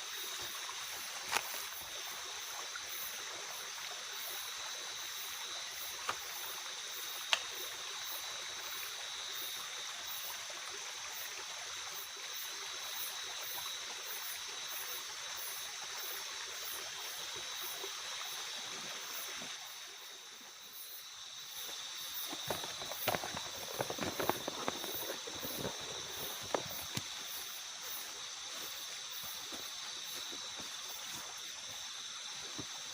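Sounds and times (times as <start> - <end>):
insects trilling: 0.0 - 32.9
steady watery hiss: 0.0 - 32.9
rustling and crackling: 22.2 - 27.1.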